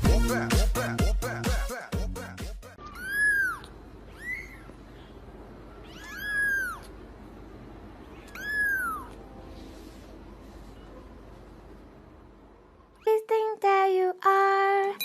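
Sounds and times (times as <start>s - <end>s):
cat meowing: 2.8s - 4.7s, 5.7s - 7.0s, 8.1s - 9.2s.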